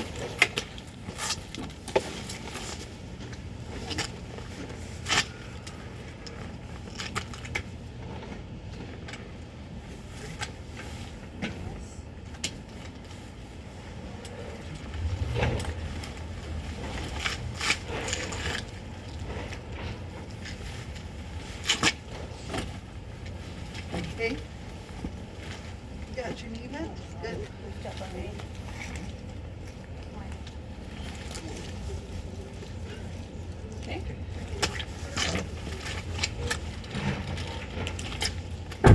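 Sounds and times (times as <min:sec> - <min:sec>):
vehicle engine rumbling: 0:13.0 - 0:21.5, 0:35.4 - 0:38.9.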